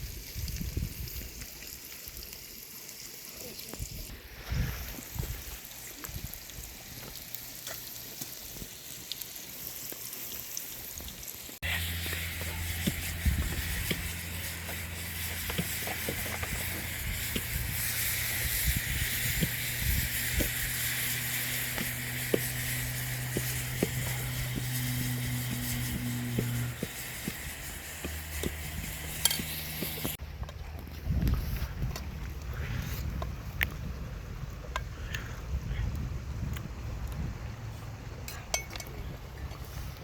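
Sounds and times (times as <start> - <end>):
food sizzling in a pan: 0.0 - 30.2.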